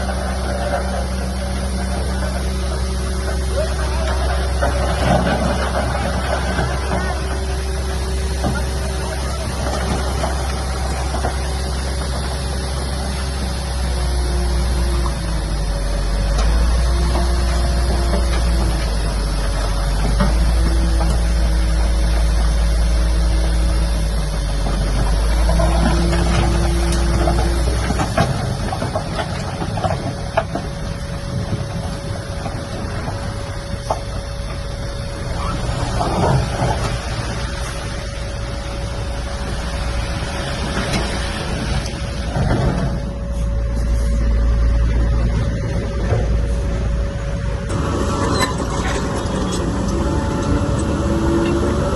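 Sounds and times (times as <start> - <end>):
diesel engine running: 0.0 - 51.9
low hum: 0.0 - 51.9
steady whine: 0.0 - 51.9
machinery clattering: 44.5 - 51.9.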